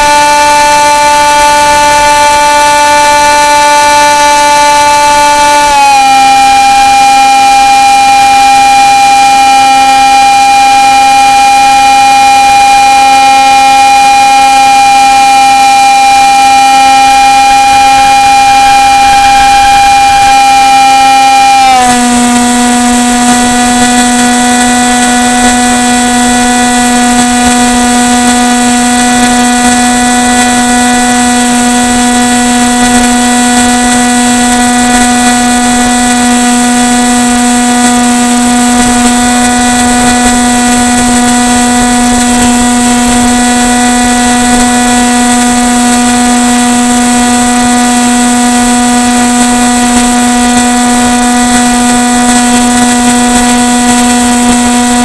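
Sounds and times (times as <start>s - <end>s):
model airplane motor droning: 0.0s - 55.0s
hiss of propeller air: 16.4s - 55.0s.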